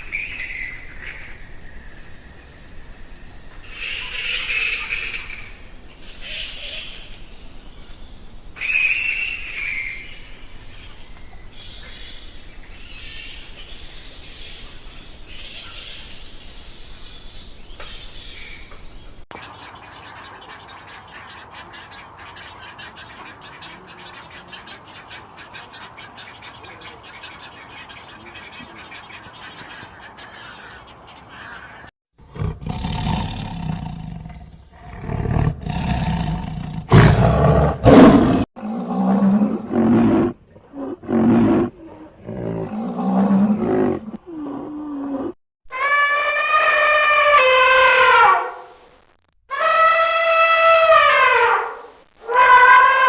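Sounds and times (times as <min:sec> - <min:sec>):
birds chattering: 0:00.0 - 0:38.4
birds chirping: 0:00.0 - 0:45.4.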